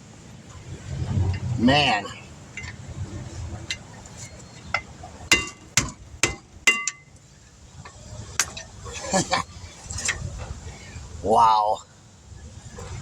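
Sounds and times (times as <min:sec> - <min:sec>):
light metal taps and clinks: 0:02.6 - 0:02.8, 0:03.7 - 0:07.2
hammer striking metal: 0:04.8 - 0:07.1.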